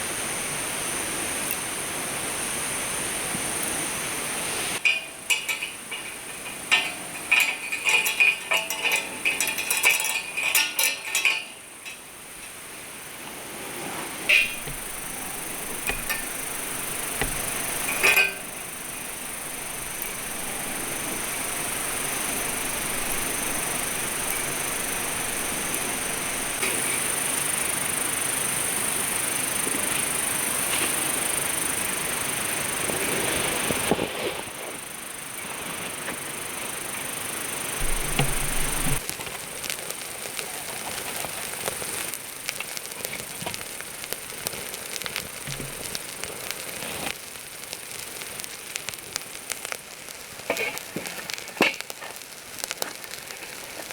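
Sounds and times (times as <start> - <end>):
steady hiss: 0.0 - 53.9
metal cookware clinking: 4.8 - 12.6, 14.3 - 26.6, 37.8 - 39.0.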